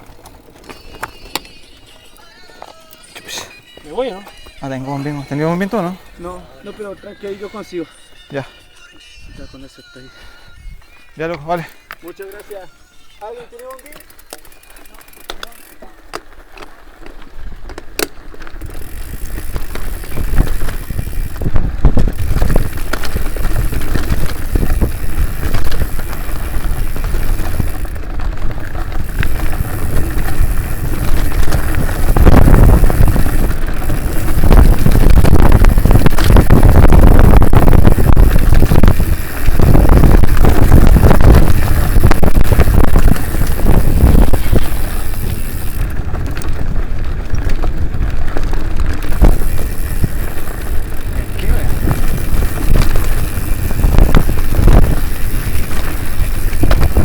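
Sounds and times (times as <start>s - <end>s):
bike rattling: 0.0s - 57.0s
wind on microphone: 18.6s - 57.0s.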